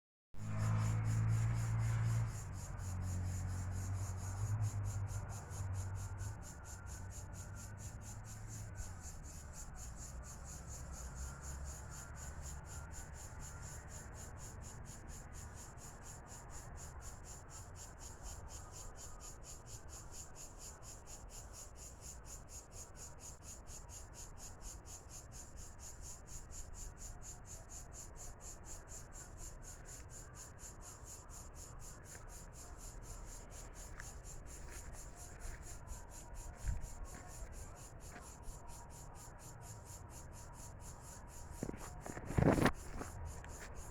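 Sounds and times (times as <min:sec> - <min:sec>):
insect rasping call: 0:27.5 - 0:43.9.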